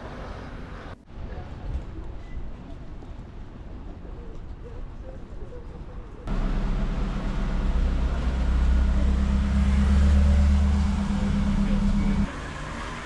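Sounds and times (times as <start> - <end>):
vehicle engine humming: 6.3 - 13.0.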